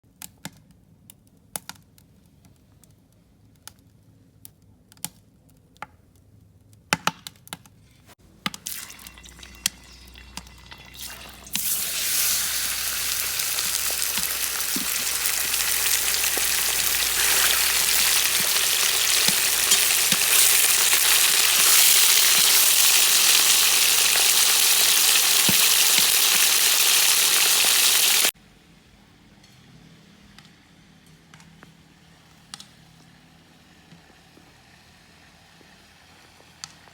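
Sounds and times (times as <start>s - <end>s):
pork sizzling in hot oil: 8.5s - 28.3s.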